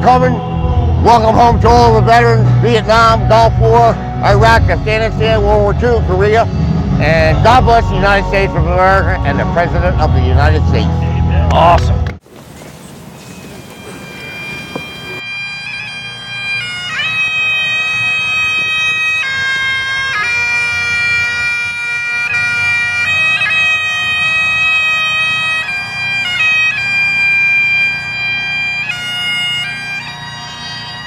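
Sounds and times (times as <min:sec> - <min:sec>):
wind instrument slow melody: 0:00.0 - 0:11.7, 0:13.2 - 0:31.0
steady drone: 0:00.0 - 0:12.1.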